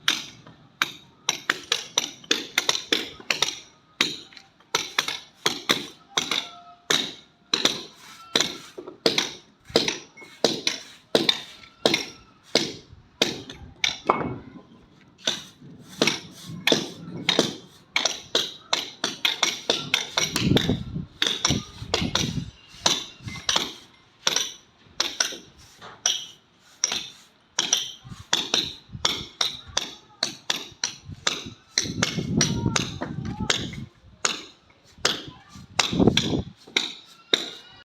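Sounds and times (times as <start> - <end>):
hammer striking: 0.0 - 14.4, 15.2 - 37.8.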